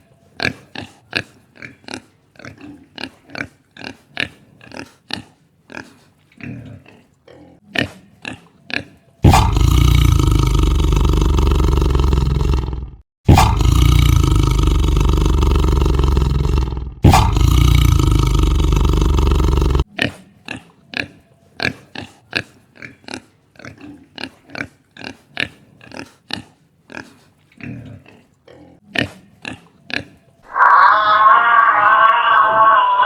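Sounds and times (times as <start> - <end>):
harsh animal call: 9.2 - 19.9, 30.4 - 33.0.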